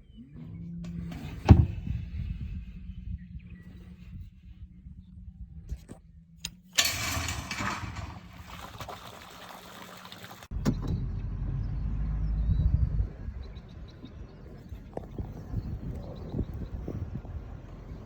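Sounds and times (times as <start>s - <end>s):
vehicle engine humming: 10.5s - 18.0s.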